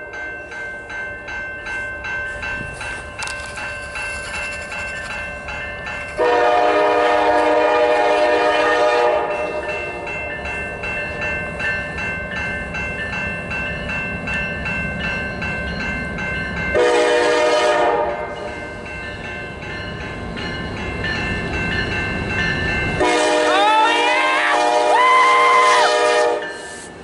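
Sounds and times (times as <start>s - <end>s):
freight train rumbling: 0.0s - 27.0s
train horn blast: 6.2s - 10.0s, 16.8s - 18.4s, 23.0s - 26.6s
bell ringing: 9.3s - 16.9s, 18.3s - 23.1s.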